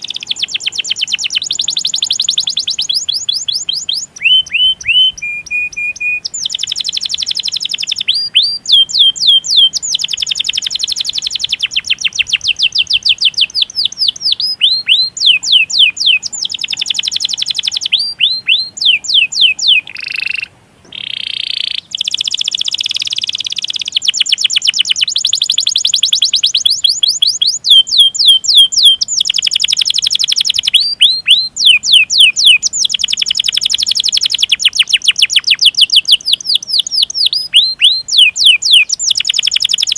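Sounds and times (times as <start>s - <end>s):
canary singing rolls: 0.0s - 39.9s.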